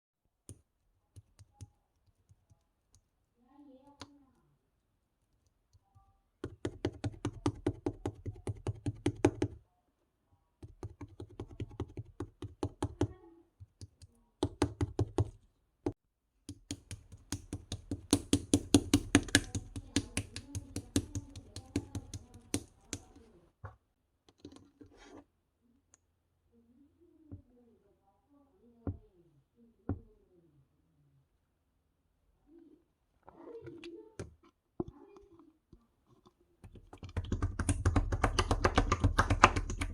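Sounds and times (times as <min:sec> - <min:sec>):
rapid clicking taps: 0:06.4 - 0:09.6, 0:10.6 - 0:15.4, 0:16.5 - 0:23.2, 0:36.7 - 0:39.9.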